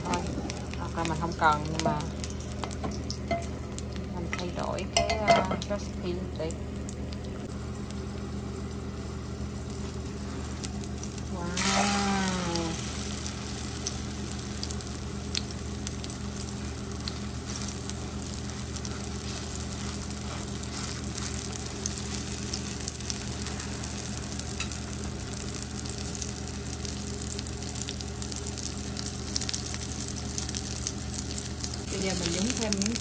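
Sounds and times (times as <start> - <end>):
oil spattering crackles: 6.8 - 33.0
omelette sizzling in a pan: 6.9 - 33.0.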